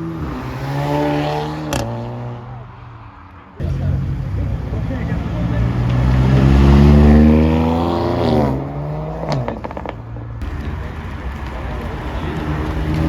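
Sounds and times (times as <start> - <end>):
car engine accelerating: 3.6 - 13.0.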